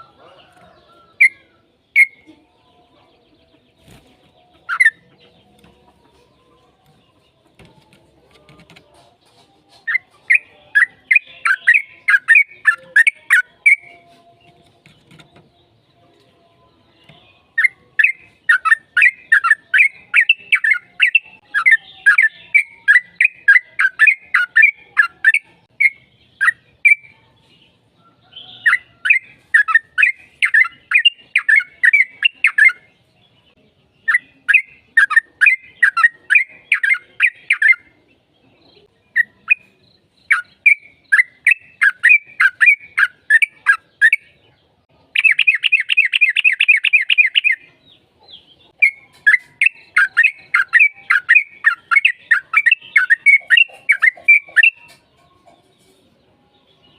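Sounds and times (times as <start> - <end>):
bird chattering song: 0.0 - 15.8, 17.0 - 56.9
bird trill: 17.5 - 27.1, 28.2 - 32.9, 34.0 - 37.9, 39.1 - 44.3, 45.1 - 47.7, 48.7 - 55.0.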